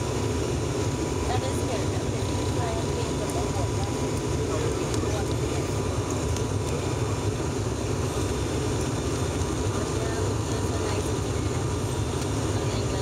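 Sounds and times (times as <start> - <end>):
turboprop engine drone: 0.0 - 13.0.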